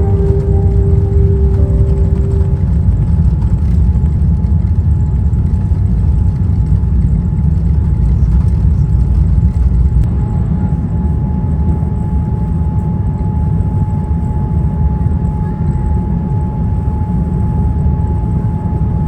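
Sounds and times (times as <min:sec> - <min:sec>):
thin steady whine: 0:00.0 - 0:04.1
airliner cabin rumble: 0:00.0 - 0:11.1.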